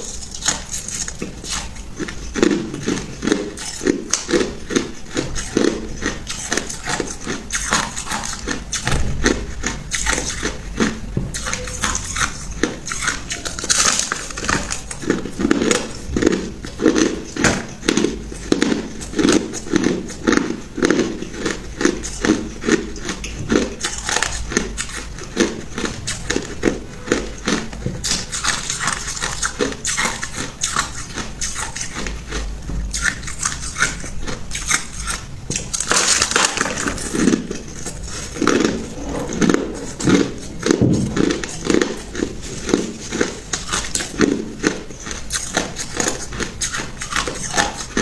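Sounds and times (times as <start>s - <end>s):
person chewing ice: 0.0s - 48.0s.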